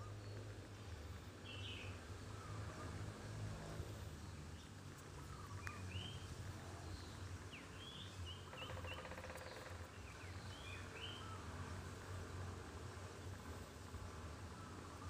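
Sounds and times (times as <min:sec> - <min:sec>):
small birds chirping: 0:00.0 - 0:03.0, 0:04.0 - 0:11.5
low steady background hum: 0:00.0 - 0:15.0.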